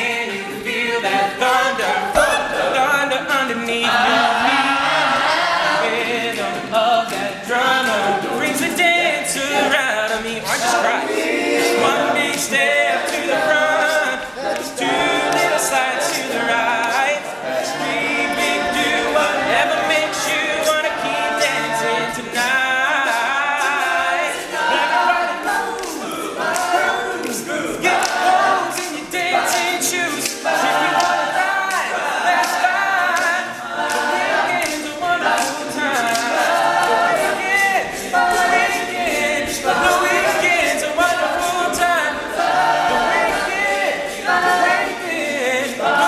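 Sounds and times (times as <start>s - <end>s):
male group singing a cappella: 0.0s - 46.0s.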